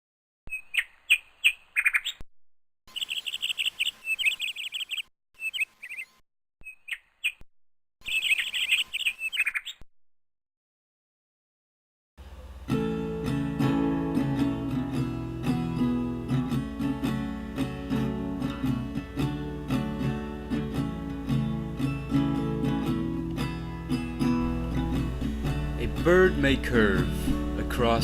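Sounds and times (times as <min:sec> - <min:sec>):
small birds chirping and trilling: 0:00.5 - 0:02.2, 0:02.9 - 0:07.4, 0:08.0 - 0:09.8
acoustic guitar strumming: 0:12.2 - 0:28.0.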